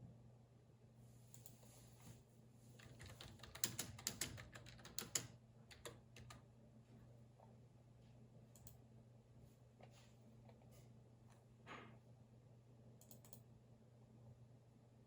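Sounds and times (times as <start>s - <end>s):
computer keyboard typing: 2.8s - 6.4s.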